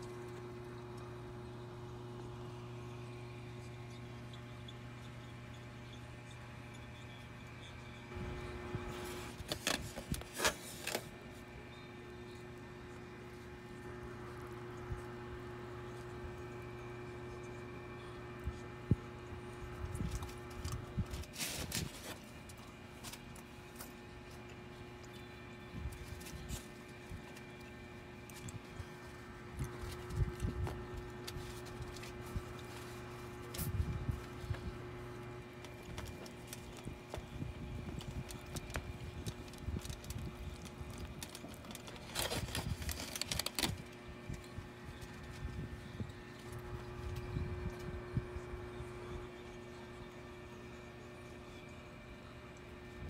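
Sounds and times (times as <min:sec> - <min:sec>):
steady low hum: 0:00.0 - 0:53.0
crusty bread crackling: 0:25.9 - 0:47.4.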